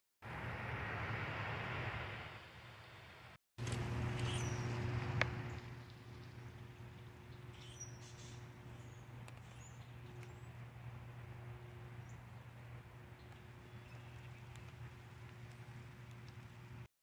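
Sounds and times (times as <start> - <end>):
steady low hum: 3.6 - 16.9
high bird chirps: 4.2 - 4.7, 7.3 - 10.6.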